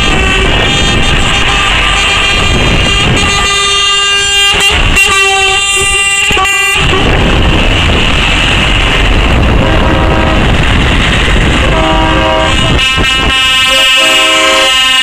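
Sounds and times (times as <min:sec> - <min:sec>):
lorry air horn blast: 0:00.0 - 0:07.2, 0:11.6 - 0:15.0
rumbling traffic noise: 0:00.0 - 0:15.0.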